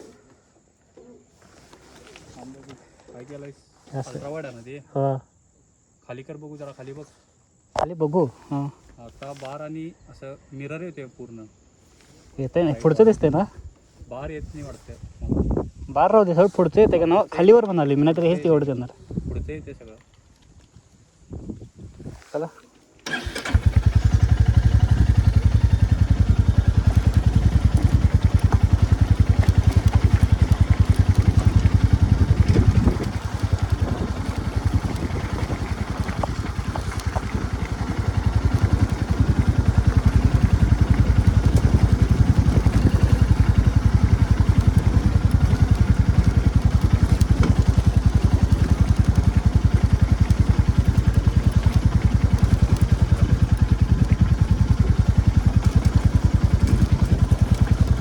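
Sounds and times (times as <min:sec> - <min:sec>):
motorcycle engine thumping: 0:23.1 - 0:58.0.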